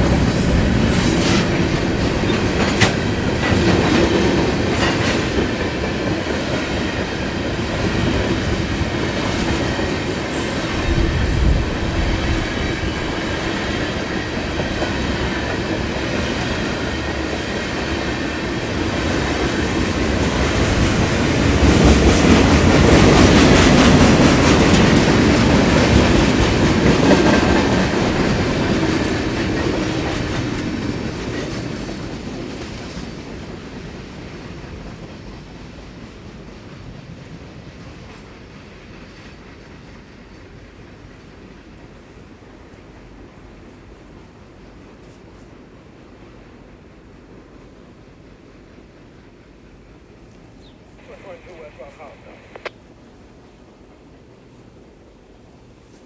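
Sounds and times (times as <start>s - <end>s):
train wheel squeal: 0.0s - 14.2s
train wheels clattering on rails: 0.0s - 50.7s.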